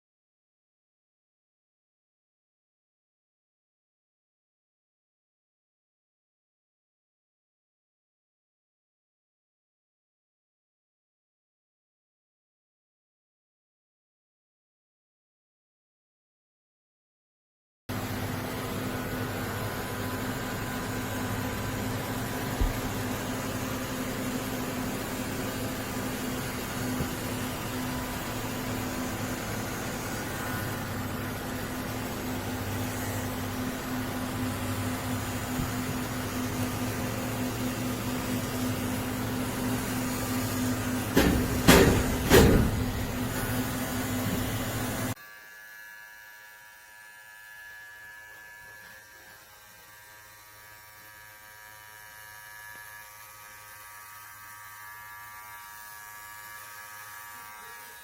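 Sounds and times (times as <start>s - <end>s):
motor hum: 17.9s - 45.2s
loud knocks: 22.6s - 23.1s, 41.1s - 43.6s.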